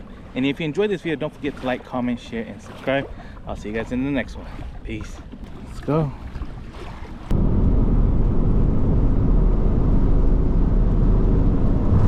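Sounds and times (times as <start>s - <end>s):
vehicle rumbling in motion: 7.3s - 12.0s.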